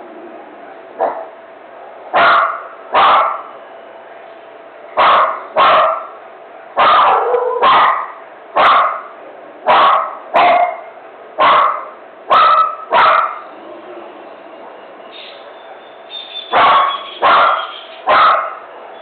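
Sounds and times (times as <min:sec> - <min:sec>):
dog barking: 0:01.0 - 0:03.5, 0:05.0 - 0:06.2, 0:06.8 - 0:09.1, 0:09.7 - 0:13.5, 0:16.5 - 0:18.7.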